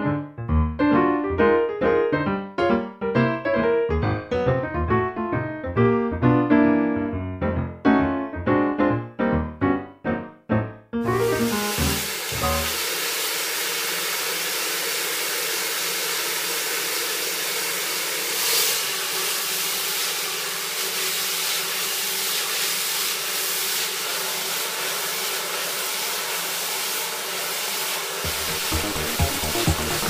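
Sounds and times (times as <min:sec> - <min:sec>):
hair dryer blowing: 0:11.0 - 0:30.0.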